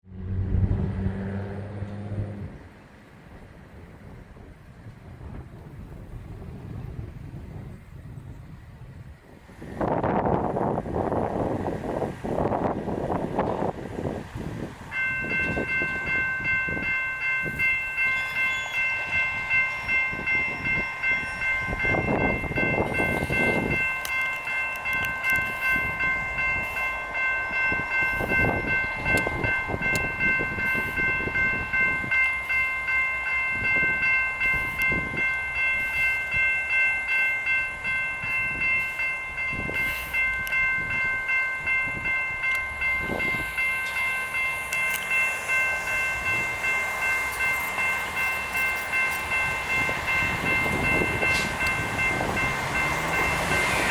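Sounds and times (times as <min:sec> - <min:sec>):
low rumbling noises: 0:00.1 - 0:09.1
railroad crossing bell ringing: 0:09.8 - 0:53.9.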